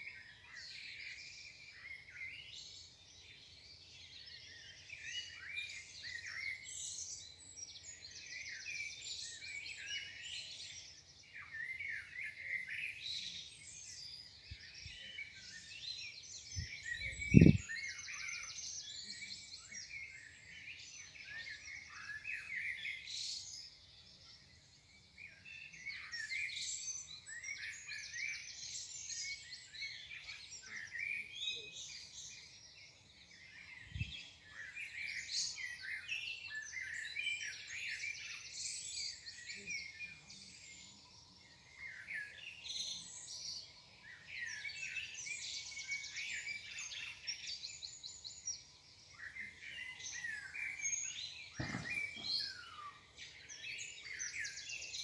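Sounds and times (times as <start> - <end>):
songbirds singing: 0.0 - 55.0
low thump: 51.6 - 52.4.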